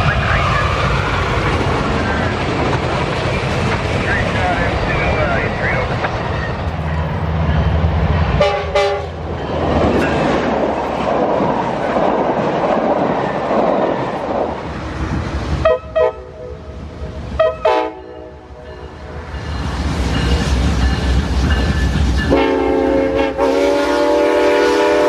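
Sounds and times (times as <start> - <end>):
train wheels rushing on rail: 0.0 - 25.0
locomotive horn short blasts: 8.4 - 9.2, 22.3 - 25.0
train horn: 8.4 - 9.2, 15.6 - 16.6, 17.4 - 18.5, 22.3 - 25.0.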